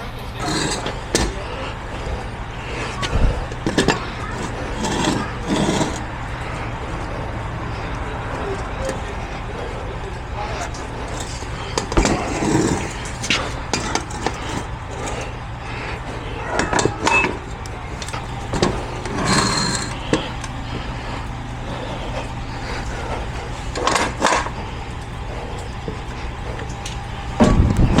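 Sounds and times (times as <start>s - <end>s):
knocks and clanks: 0.0s - 7.2s, 10.6s - 20.9s, 23.7s - 24.6s, 25.3s - 28.0s
vehicle engine idling: 0.0s - 28.0s.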